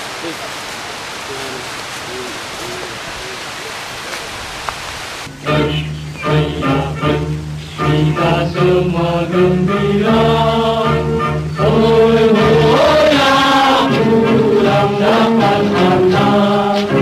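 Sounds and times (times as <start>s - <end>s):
steady low drone: 5.3s - 17.0s
chant-like singing: 5.4s - 17.0s.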